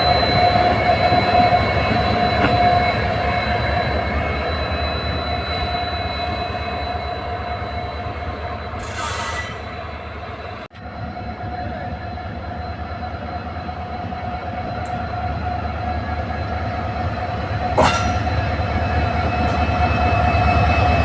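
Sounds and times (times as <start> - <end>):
thin squealing tone: 0.0 - 10.0
train wheels rumbling on rails: 0.0 - 21.0.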